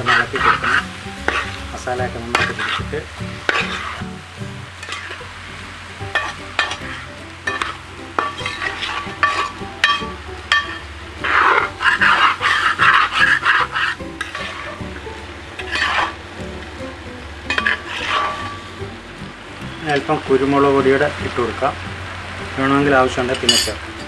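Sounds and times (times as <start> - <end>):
spoon scraping metal pot: 0.0 - 1.7, 2.3 - 16.6, 17.5 - 18.9
meat sizzling: 0.0 - 24.0.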